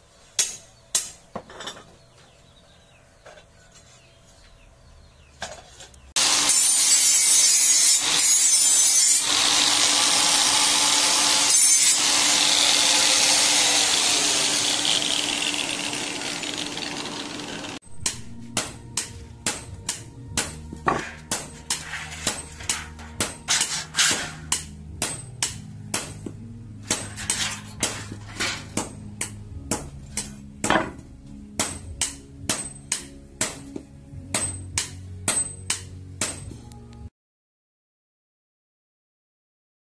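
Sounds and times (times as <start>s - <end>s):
low background music: 17.8s - 37.1s.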